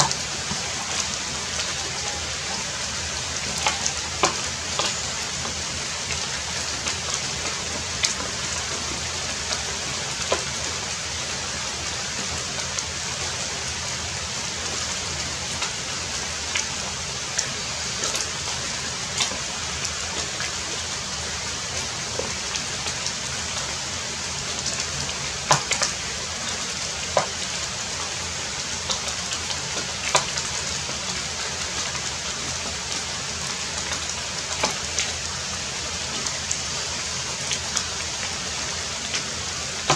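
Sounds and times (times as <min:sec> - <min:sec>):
water drops dripping close by: 0:00.0 - 0:08.7, 0:24.5 - 0:32.0
heavy rain falling: 0:00.0 - 0:39.9.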